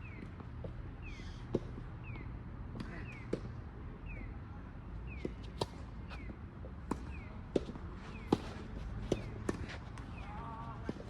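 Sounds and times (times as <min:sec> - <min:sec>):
tennis balls hit and bouncing: 0:01.5 - 0:01.9, 0:05.1 - 0:11.0.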